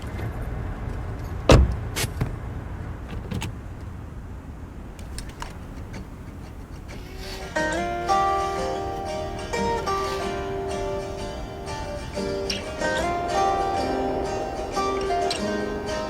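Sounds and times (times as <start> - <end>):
low car rumble: 0.0 - 16.0
loud thump: 1.5 - 1.8
guitar music: 5.0 - 16.0.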